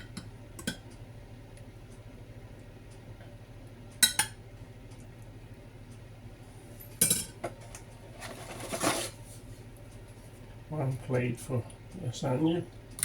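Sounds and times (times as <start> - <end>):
utensil scraping dish: 8.2 - 9.2.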